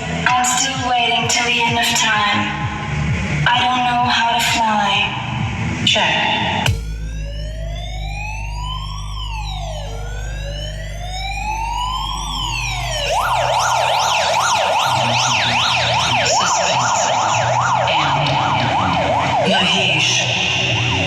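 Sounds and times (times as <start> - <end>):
steady low hum: 0.0 - 16.4
siren wailing and yelping: 6.1 - 21.0.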